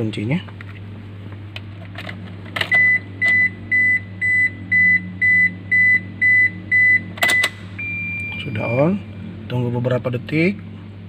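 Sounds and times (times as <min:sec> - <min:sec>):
dashboard warning chime beeping: 0:02.7 - 0:09.1.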